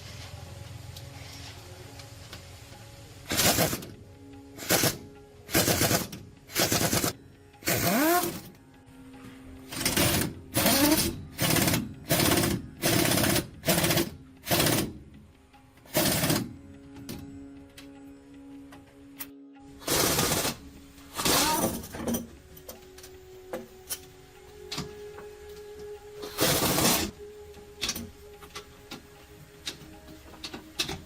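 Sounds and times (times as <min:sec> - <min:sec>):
impact wrench hammering: 0:09.7 - 0:15.0.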